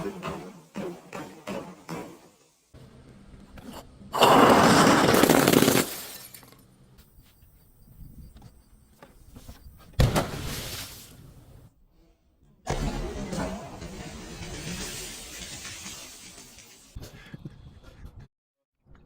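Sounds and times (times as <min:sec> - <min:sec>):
glass breaking and crunching: 0:04.8 - 0:06.6.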